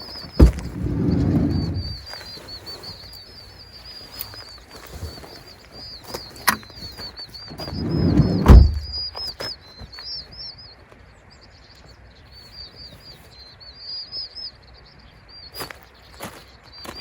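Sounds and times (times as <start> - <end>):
small birds chirping: 0.0 - 17.0
low rumble ending in thump: 0.4 - 2.0, 7.5 - 9.1.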